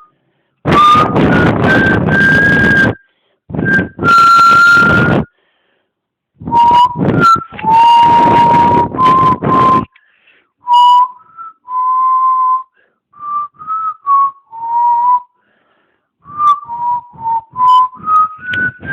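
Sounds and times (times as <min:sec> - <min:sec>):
person whistling a tune: 0:00.0 - 0:05.4, 0:06.4 - 0:10.0, 0:10.6 - 0:15.5, 0:16.2 - 0:18.9
breathing: 0:00.1 - 0:00.6, 0:03.0 - 0:03.5, 0:05.3 - 0:06.1, 0:09.9 - 0:10.6, 0:12.7 - 0:13.1, 0:15.3 - 0:16.2.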